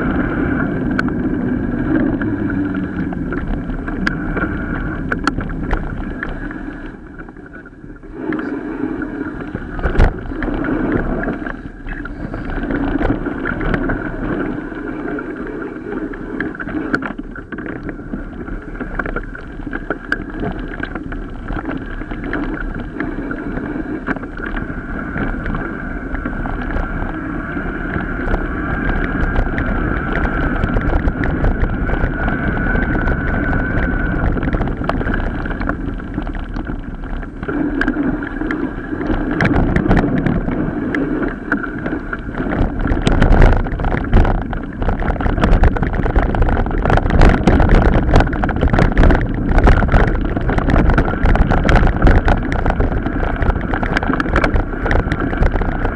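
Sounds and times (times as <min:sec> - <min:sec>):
bike tyre rumble: 0:00.0 - 0:55.9
wind buffeting microphone: 0:00.0 - 0:55.9
bike rattling over rough ground: 0:26.1 - 0:40.6, 0:41.5 - 0:55.9.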